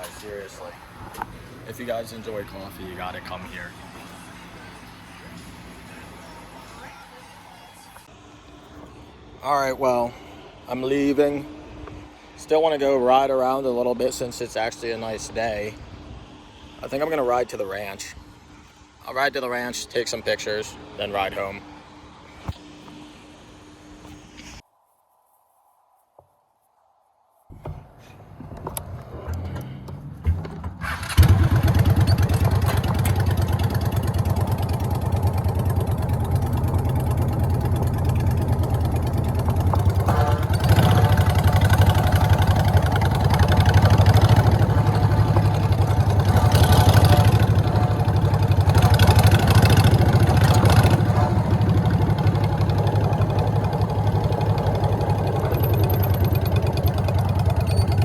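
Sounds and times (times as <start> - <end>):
motorcycle engine idling: 31.2 - 58.0.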